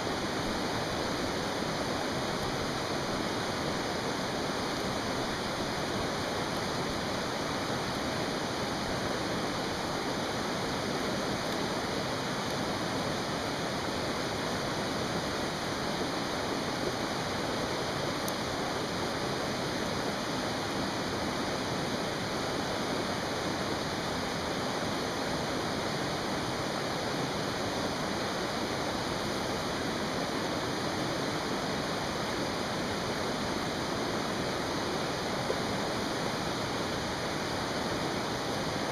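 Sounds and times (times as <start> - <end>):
mountain stream rushing: 0.0 - 38.9
campfire popping: 11.0 - 12.6.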